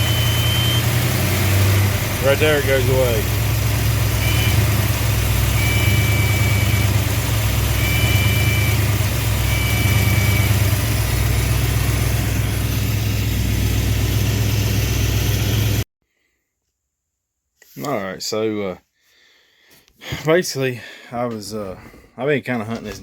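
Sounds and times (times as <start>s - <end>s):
engine running steadily: 0.0s - 15.8s.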